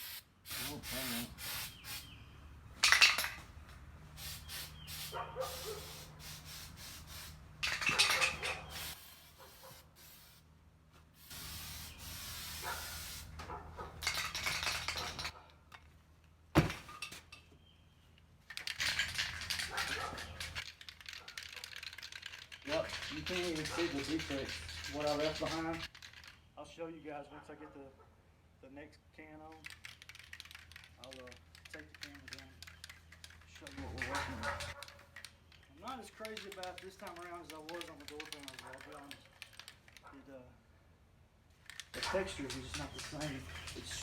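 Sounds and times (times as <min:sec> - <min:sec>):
aerosol can spraying hiss: 0:00.0 - 0:02.1, 0:04.2 - 0:07.4, 0:08.6 - 0:10.4, 0:11.2 - 0:13.4
sharp clicks: 0:18.2 - 0:26.5, 0:29.5 - 0:40.2, 0:41.5 - 0:44.0.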